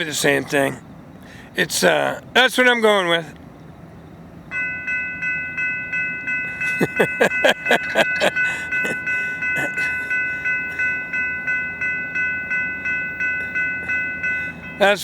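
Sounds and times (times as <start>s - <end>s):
railroad crossing bell ringing: 0.0s - 0.8s, 4.4s - 15.0s.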